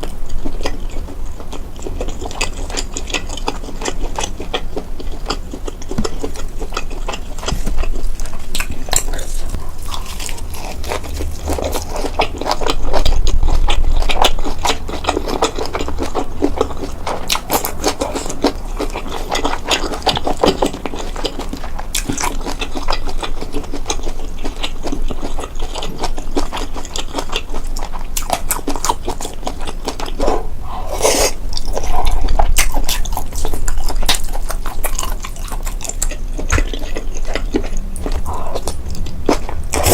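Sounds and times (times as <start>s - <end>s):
chewing with crisp crackles: 0.0s - 39.9s
wet mouth sounds: 28.2s - 39.9s.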